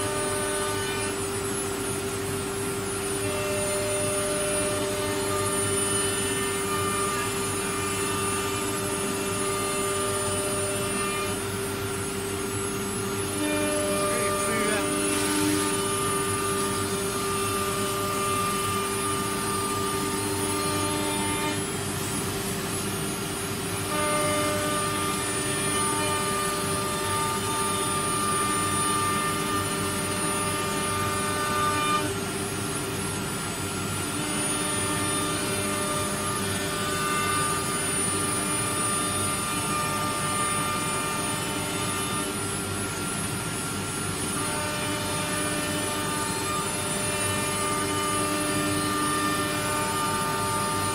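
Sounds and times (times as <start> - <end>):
cnc router motor whine: 0.0 - 50.9.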